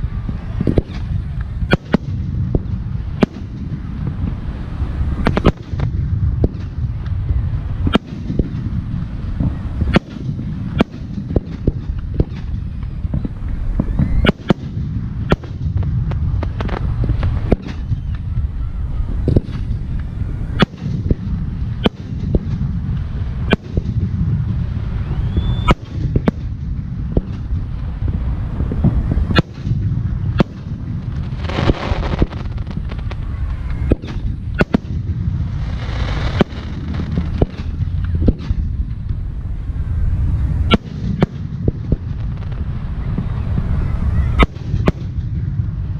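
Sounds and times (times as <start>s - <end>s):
firework crackling: 0.0s - 45.9s
low rumble: 0.0s - 45.9s.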